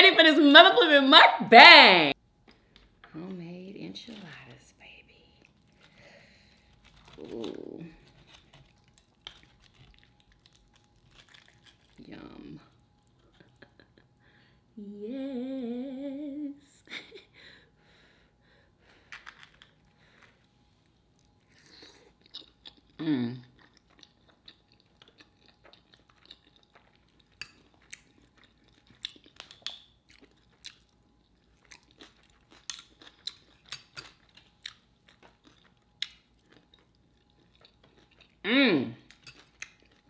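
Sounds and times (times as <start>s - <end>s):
close chewing and crunching: 2.4s - 14.2s, 18.9s - 40.0s
hummed mm: 14.7s - 16.7s.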